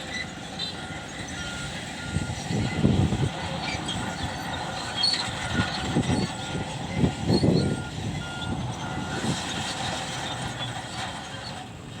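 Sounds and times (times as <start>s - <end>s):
heavy machinery diesel engines: 0.0s - 12.0s
reversing alarm beeping: 0.6s - 2.9s, 5.0s - 9.4s.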